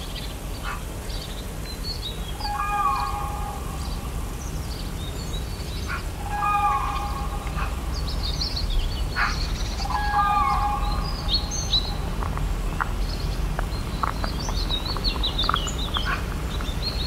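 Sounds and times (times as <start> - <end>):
birds chirping: 0.0 - 17.0
low outdoor background noise: 0.0 - 17.0
low drawn-out bird call: 2.4 - 4.8, 5.8 - 12.2.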